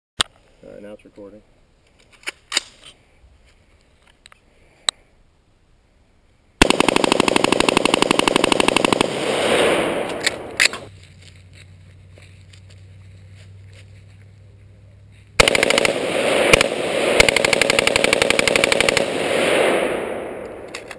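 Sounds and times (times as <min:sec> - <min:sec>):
rifle rapid fire: 0:06.6 - 0:10.9, 0:15.4 - 0:20.9
sharp cracks: 0:06.6 - 0:10.9, 0:15.4 - 0:20.9.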